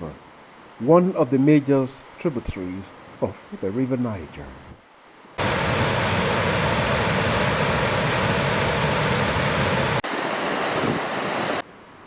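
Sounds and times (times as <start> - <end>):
waterfall rushing water: 5.1 - 11.7.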